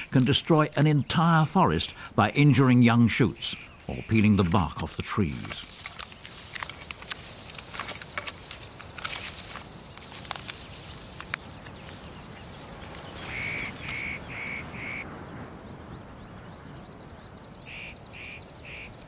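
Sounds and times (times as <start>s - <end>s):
wild birds calling: 0.0s - 19.0s
fast high bird trill: 10.9s - 15.0s
bird short calls: 13.0s - 15.0s.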